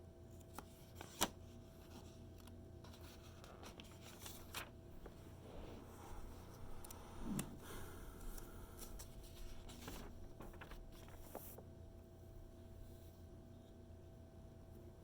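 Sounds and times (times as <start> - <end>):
magazine pages rustling: 0.4 - 11.7.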